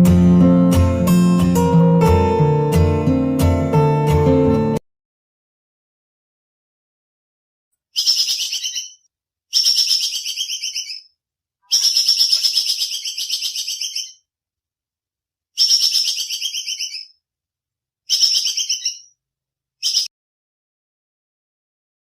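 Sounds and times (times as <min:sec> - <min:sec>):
animal chirping trills: 0:08.0 - 0:11.1, 0:11.7 - 0:14.2, 0:15.6 - 0:17.2, 0:18.1 - 0:19.1, 0:19.8 - 0:20.1.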